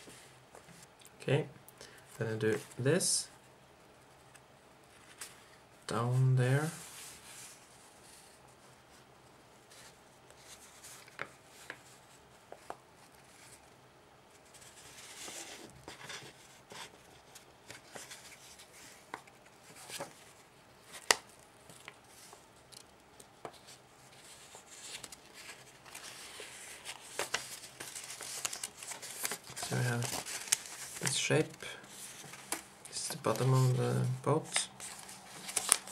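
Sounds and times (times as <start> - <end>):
paper rustling and creasing: 9.7 - 35.9.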